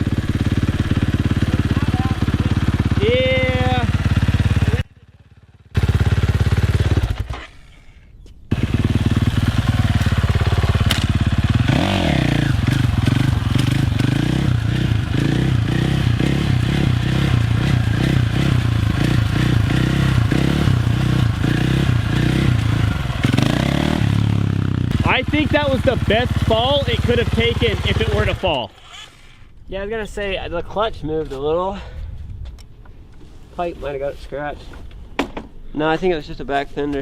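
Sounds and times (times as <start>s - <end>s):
dirt bike engine running: 0.0s - 7.8s, 8.5s - 29.2s.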